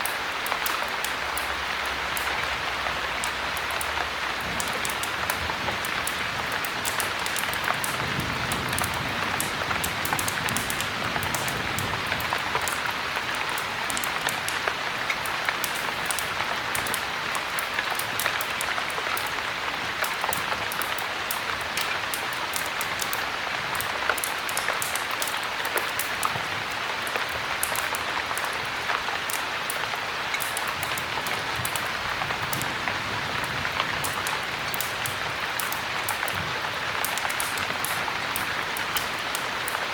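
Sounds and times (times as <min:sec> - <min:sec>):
heavy rain: 0:00.0 - 0:39.9
wood fire crackling: 0:00.0 - 0:39.9.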